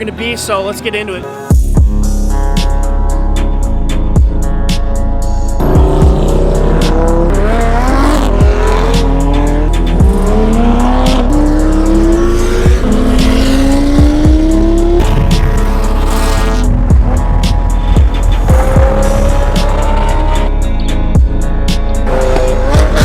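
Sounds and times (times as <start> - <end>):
background music with bass: 0.0 - 23.0
car engine accelerating: 5.6 - 23.0.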